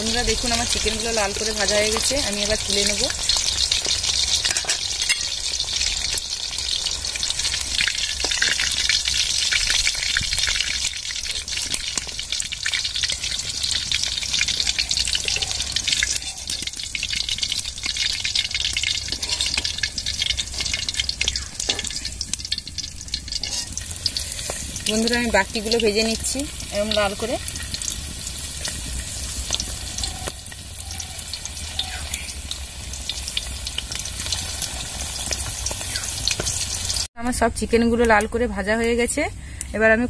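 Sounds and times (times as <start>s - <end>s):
chicken deep-frying in oil: 0.0s - 39.6s
metal spoon scraping pan: 19.0s - 21.0s, 21.6s - 22.1s, 23.3s - 24.9s.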